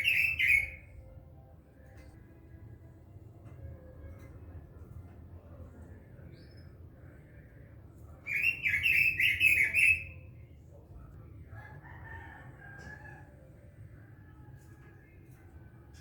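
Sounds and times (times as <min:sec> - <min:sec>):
bird singing: 0:00.0 - 0:01.0, 0:08.3 - 0:10.3.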